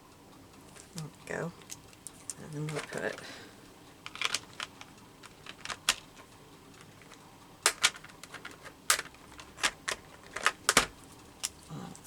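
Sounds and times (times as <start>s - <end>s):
plastic art supplies clicking: 1.6s - 3.3s, 4.0s - 11.6s.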